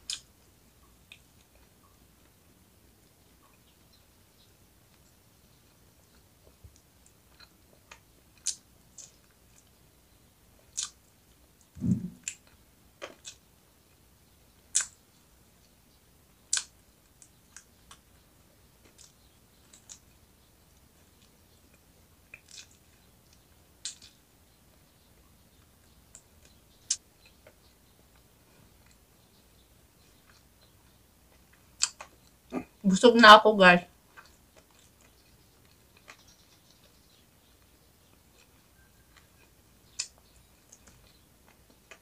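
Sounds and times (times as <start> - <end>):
wet chewing clicks and smacks: 0.0 - 2.4, 4.9 - 9.8, 10.6 - 14.0, 14.6 - 15.0, 16.4 - 18.1, 18.8 - 29.2, 30.0 - 32.8, 34.0 - 42.0
dull low thump: 11.8 - 12.2.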